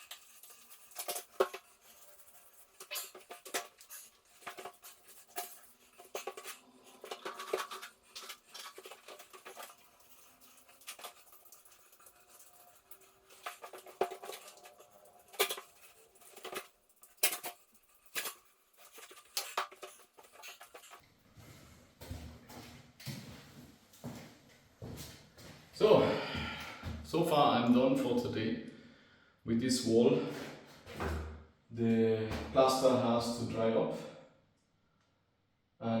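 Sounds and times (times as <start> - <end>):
metal tools scraping plaster: 0.0 - 21.0.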